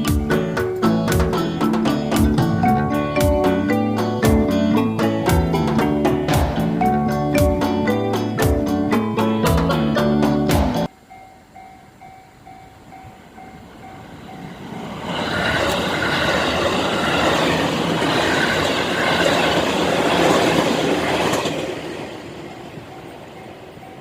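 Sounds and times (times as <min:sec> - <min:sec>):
electric train passing: 0:00.0 - 0:24.0
level-crossing bell ringing: 0:01.8 - 0:10.2.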